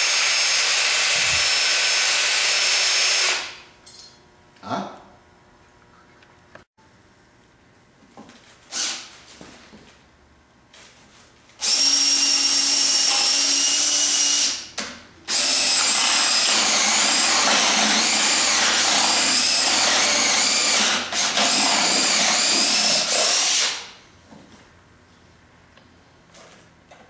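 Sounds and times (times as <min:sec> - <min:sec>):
cordless drill whining under load: 0:00.0 - 0:03.6, 0:11.6 - 0:14.6, 0:15.3 - 0:24.0.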